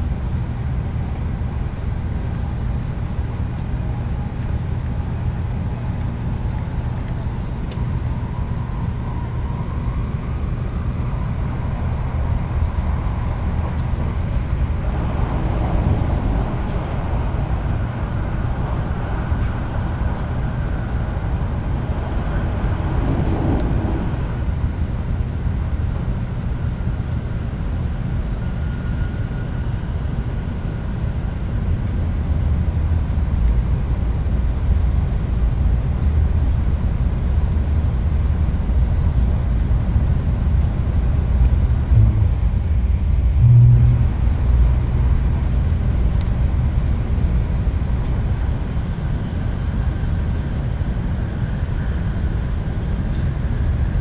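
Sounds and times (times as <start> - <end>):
train running rumble: 0.0 - 54.0
short low bump: 41.9 - 44.2.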